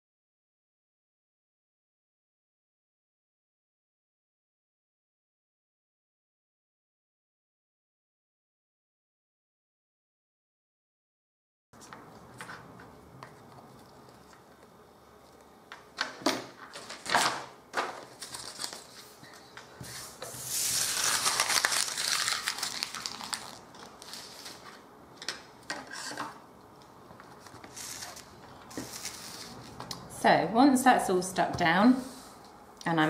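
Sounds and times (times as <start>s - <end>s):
paper rustling and rubbing: 17.9s - 24.8s, 27.3s - 29.8s.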